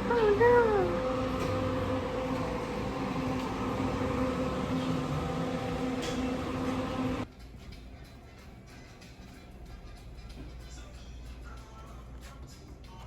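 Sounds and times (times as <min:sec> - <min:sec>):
bus engine hum: 0:00.0 - 0:07.2.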